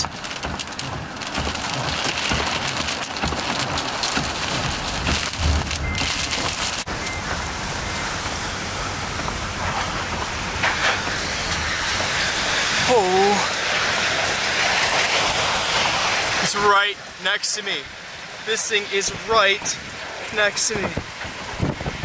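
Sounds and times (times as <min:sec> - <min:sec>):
wind-driven rain on hard surfaces: 0:00.0 - 0:22.0.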